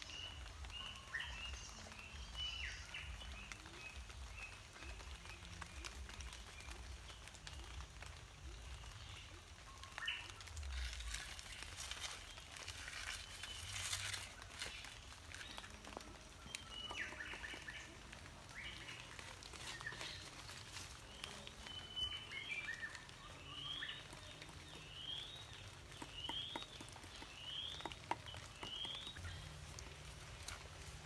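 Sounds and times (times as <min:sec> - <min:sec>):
bird chirping: 0:08.7 - 0:31.0.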